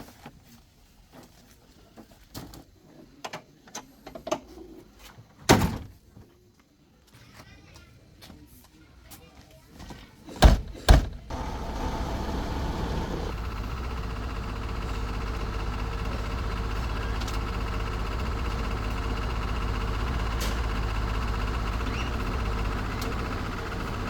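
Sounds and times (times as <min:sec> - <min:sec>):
car engine starting and idling: 0:10.9 - 0:24.0.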